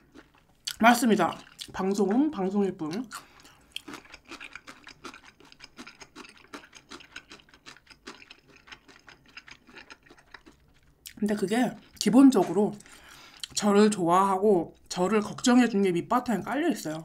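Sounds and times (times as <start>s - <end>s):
chewing with mouth clicks: 0.0s - 2.2s, 2.8s - 11.2s, 11.8s - 13.6s.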